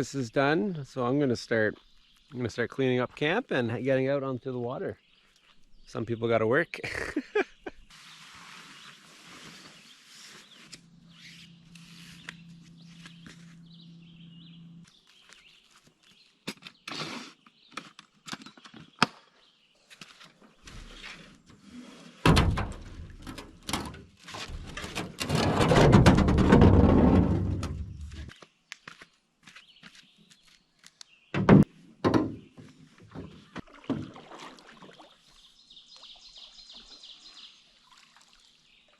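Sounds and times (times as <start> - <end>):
rustling and handling noise: 8.0 - 13.6
knocks and thunks of gear: 22.2 - 28.3, 31.4 - 33.7.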